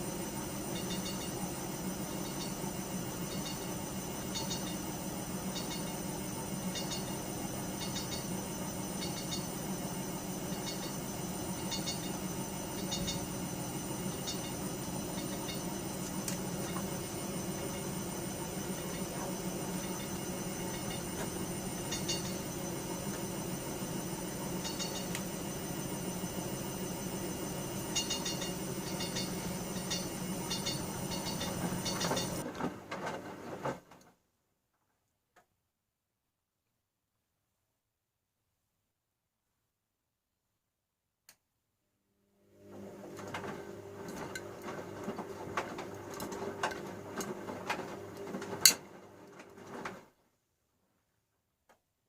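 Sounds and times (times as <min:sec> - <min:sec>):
washing machine motor hum: 0:00.0 - 0:33.7, 0:42.4 - 0:50.2
rattling of turning drum: 0:27.9 - 0:32.4.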